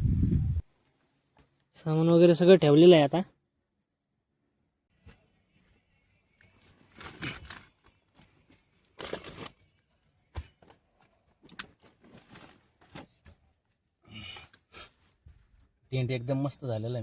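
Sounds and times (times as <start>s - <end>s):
tent fabric rustling and crinkling: 6.4s - 9.7s, 10.8s - 13.9s.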